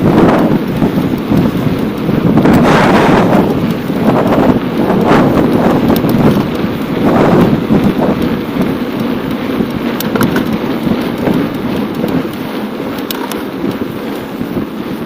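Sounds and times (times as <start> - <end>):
wind buffeting microphone: 0.0 - 15.0
sharp clicks: 7.9 - 13.8.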